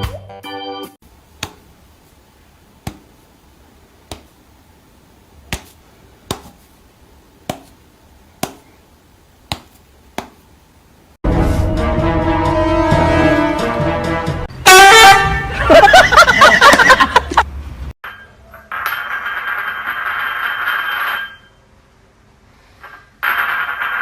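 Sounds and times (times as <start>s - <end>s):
loud music: 11.3s - 15.5s.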